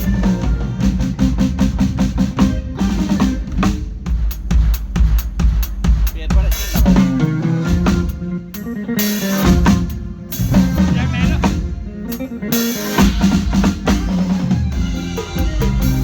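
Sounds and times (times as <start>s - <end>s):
band music: 0.0s - 16.0s
drum kit beat: 0.0s - 16.0s.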